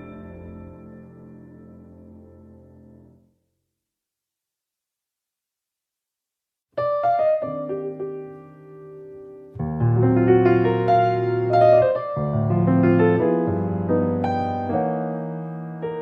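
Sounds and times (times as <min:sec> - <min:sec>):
piano music: 0:00.0 - 0:03.2, 0:06.8 - 0:16.0.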